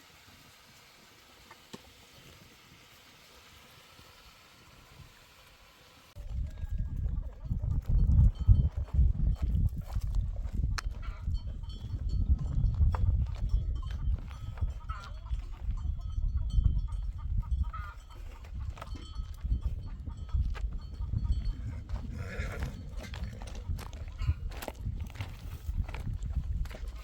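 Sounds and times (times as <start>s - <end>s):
bells clanking: 11.0s - 22.0s.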